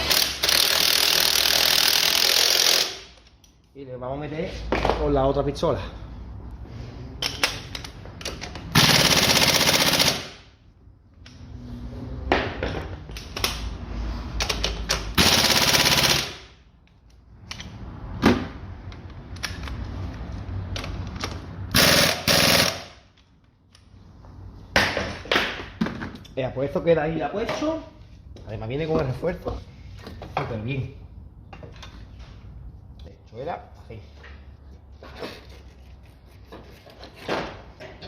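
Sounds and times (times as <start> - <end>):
impact wrench hammering: 0.0 - 3.1, 8.7 - 10.4, 14.7 - 16.6, 21.7 - 23.0
tool handling clicks and knocks: 7.2 - 8.7, 31.5 - 32.4.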